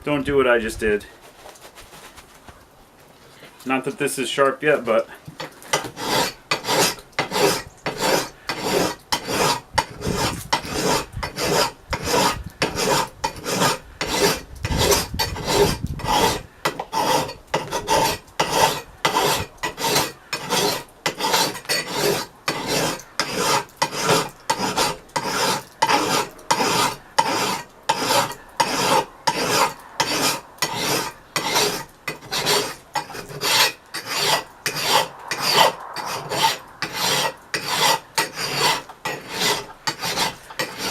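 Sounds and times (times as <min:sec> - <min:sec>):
file scraping steel: 0:05.4 - 0:40.9.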